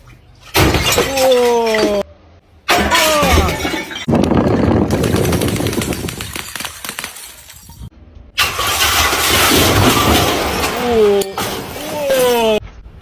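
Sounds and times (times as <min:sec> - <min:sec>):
glass bottles being crushed: 0:00.4 - 0:02.0, 0:02.7 - 0:04.8, 0:08.8 - 0:11.8.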